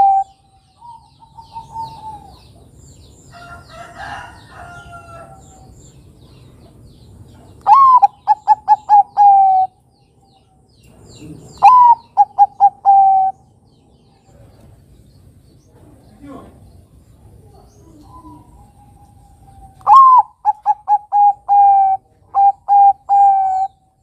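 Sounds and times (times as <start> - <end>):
dove cooing: 0.0 - 2.8, 7.6 - 9.8, 11.2 - 13.5, 17.3 - 24.0.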